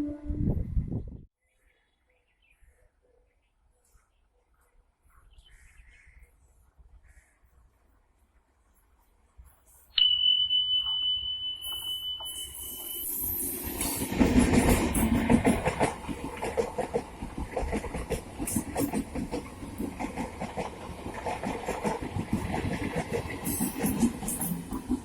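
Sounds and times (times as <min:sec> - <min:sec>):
high whistle: 0:10.0 - 0:14.0
train wheels clattering: 0:12.2 - 0:25.0.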